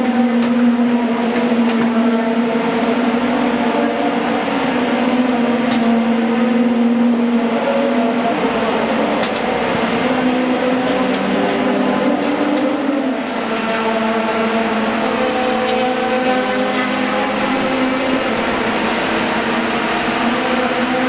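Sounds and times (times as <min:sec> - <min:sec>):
racing car engines at high revs: 0:00.0 - 0:21.0.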